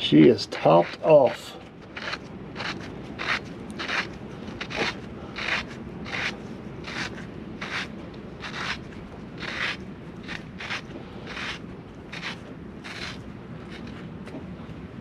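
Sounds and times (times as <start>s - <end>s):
short scraping strokes: 9.4s - 14.1s.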